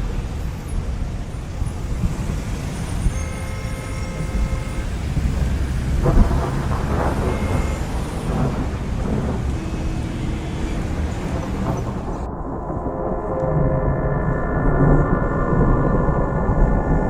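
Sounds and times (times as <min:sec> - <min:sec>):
road traffic passing: 0:01.5 - 0:13.1.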